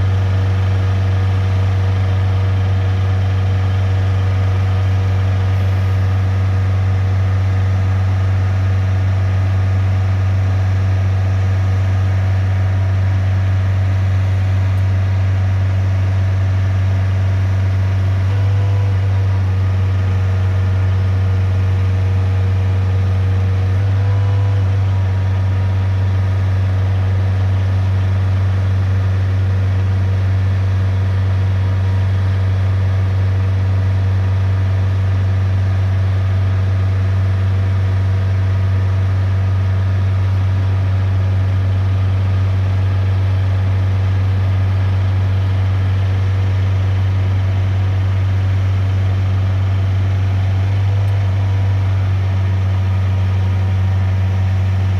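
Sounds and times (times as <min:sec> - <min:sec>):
truck diesel engine running: 0:00.0 - 0:54.9
steady whining tones: 0:03.8 - 0:08.0, 0:42.7 - 0:54.9.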